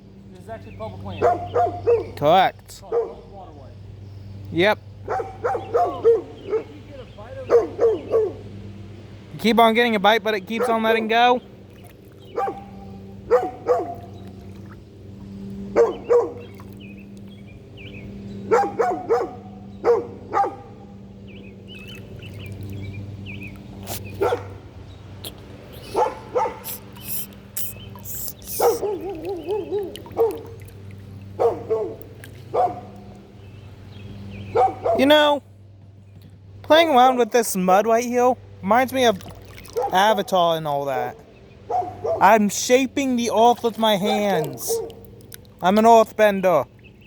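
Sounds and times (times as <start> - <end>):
dog barking: 1.2 - 2.2, 2.8 - 3.3, 5.1 - 6.8, 7.4 - 8.4, 10.6 - 10.8, 12.3 - 14.1, 15.8 - 16.4, 18.5 - 20.9, 24.2 - 24.6, 25.8 - 26.8, 28.5 - 30.6, 31.4 - 33.0, 34.5 - 35.1, 39.8 - 40.0, 41.7 - 42.3, 44.1 - 45.1.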